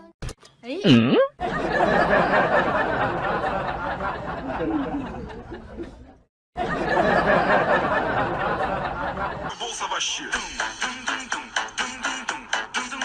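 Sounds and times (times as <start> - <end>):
people laughing: 1.4 - 10.0.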